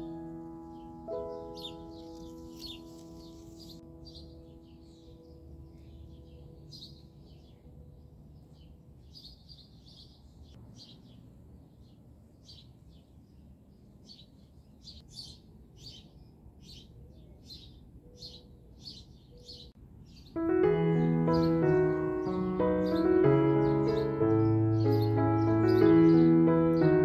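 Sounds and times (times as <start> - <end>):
piano music: 0.0 - 9.0, 20.3 - 27.0
small birds chirping: 0.0 - 27.0.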